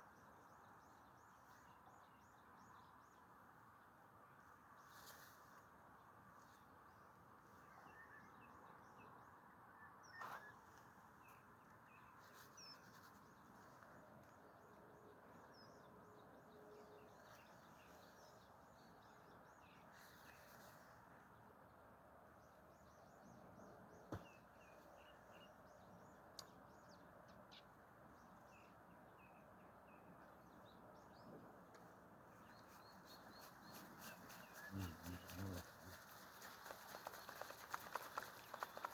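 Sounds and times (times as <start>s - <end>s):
bird chirps: 32.4s - 38.9s.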